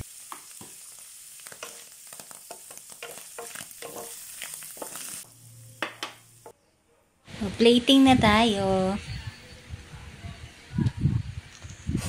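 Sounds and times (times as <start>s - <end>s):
vegetables sizzling in a frying pan: 0.0s - 6.5s
wooden spatula scraping and tapping pan: 1.5s - 5.1s.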